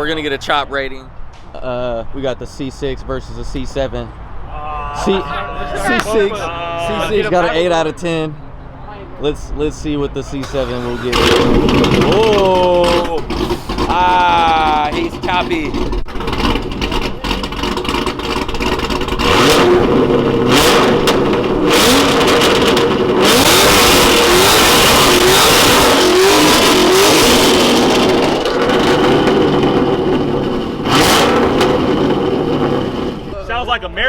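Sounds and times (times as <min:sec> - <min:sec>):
car engine revving: 0:09.5 - 0:33.4.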